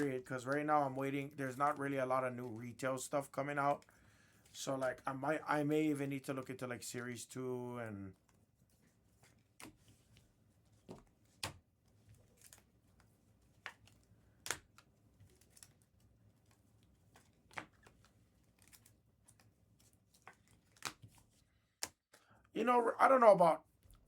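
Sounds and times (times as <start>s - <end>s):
trading cards clicking and rustling: 12.2s - 22.0s.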